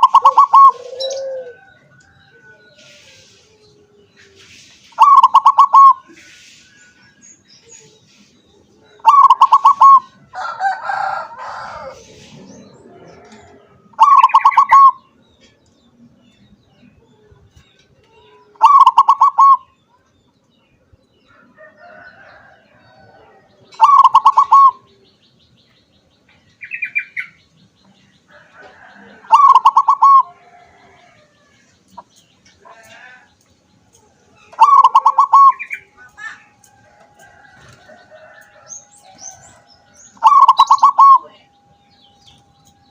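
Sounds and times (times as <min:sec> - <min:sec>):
dove cooing: 0:00.0 - 0:03.3, 0:05.0 - 0:06.2, 0:08.9 - 0:15.0, 0:18.5 - 0:19.7, 0:23.0 - 0:25.0, 0:28.6 - 0:31.4, 0:34.5 - 0:36.4, 0:40.2 - 0:41.5.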